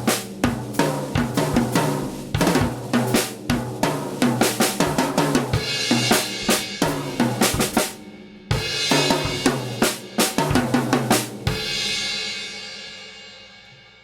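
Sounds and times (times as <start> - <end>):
acoustic drum kit playing: 0.0 - 12.4
loud cymbal crash: 5.6 - 13.6.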